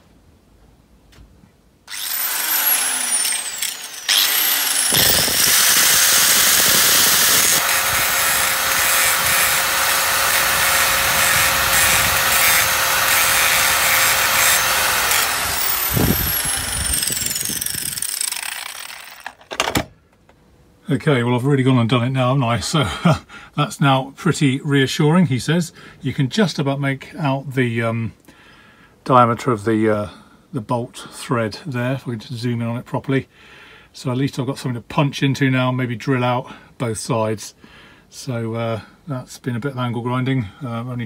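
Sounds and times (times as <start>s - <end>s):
angle grinder grinding metal: 1.9s - 19.4s.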